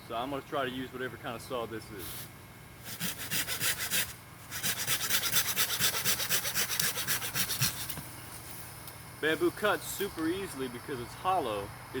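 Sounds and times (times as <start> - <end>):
hand saw cutting bamboo: 2.8 - 8.0.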